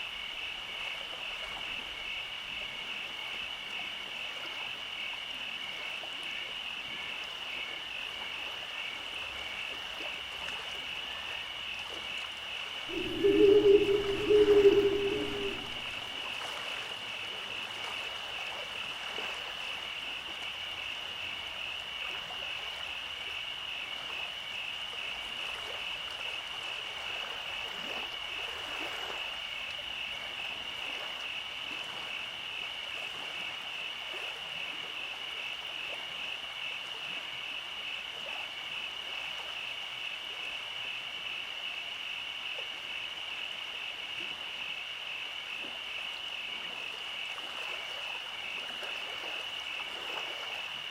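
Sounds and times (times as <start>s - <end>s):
animals calling in pulsing trill: 12.9s - 16.0s.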